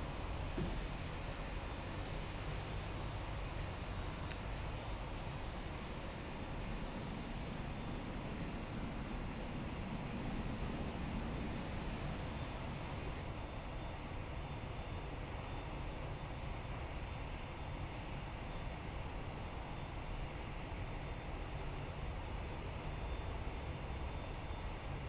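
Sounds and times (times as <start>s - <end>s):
jet engines rumbling: 0.0s - 13.5s.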